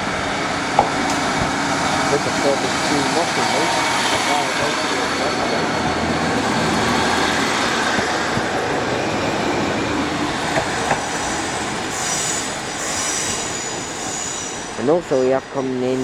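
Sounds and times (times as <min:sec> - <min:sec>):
diesel train engines running: 0:00.0 - 0:16.0
high wheel squeals: 0:10.8 - 0:16.0.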